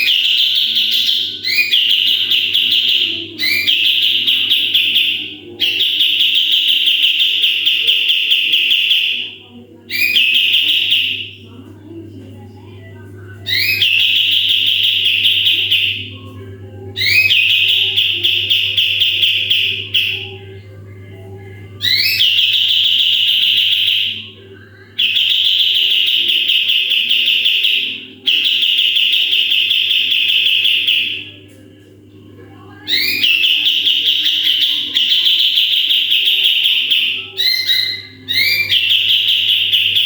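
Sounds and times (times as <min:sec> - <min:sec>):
songbird rattling trill calls: 0:00.0 - 0:09.2, 0:13.5 - 0:16.1, 0:17.0 - 0:20.3, 0:21.8 - 0:24.2, 0:32.9 - 0:40.0.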